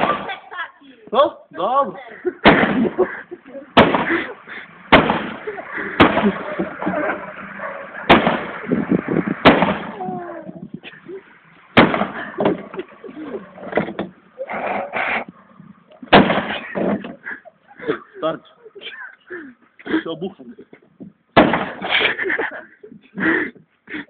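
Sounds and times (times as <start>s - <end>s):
axe striking sheet metal: 2.4s - 2.9s, 4.9s - 5.4s, 6.0s - 6.4s, 8.1s - 8.5s, 9.4s - 10.0s, 11.8s - 12.2s, 16.1s - 16.6s, 21.4s - 21.8s.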